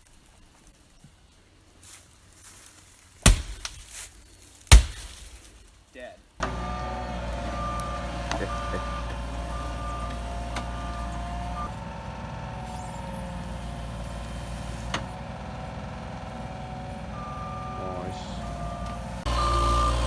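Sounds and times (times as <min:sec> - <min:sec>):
heavy machine engine running: 0:06.4 - 0:20.0
backup alarm beeping: 0:06.5 - 0:11.8, 0:16.6 - 0:20.0.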